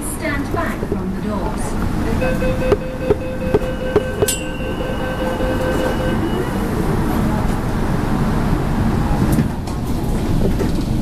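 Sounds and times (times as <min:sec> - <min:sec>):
low rumble of running train: 0:00.0 - 0:11.0
train doors shutting: 0:00.9 - 0:11.0
steady high tone: 0:02.1 - 0:07.4.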